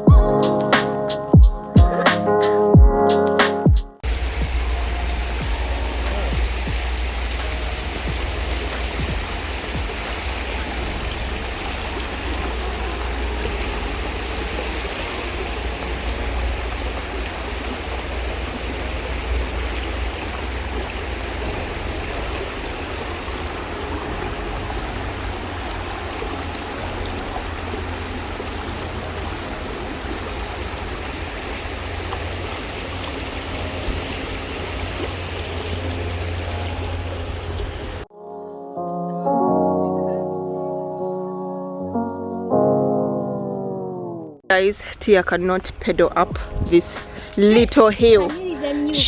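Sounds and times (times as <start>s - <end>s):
flowing water rushing: 4.0s - 38.1s, 44.5s - 49.0s
wind on microphone: 46.2s - 49.0s.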